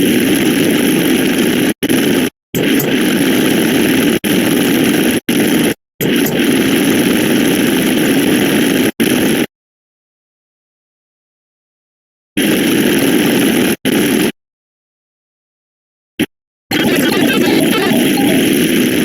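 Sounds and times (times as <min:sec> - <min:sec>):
loud rough noise: 0:00.0 - 0:09.5, 0:12.4 - 0:14.3, 0:16.7 - 0:19.0.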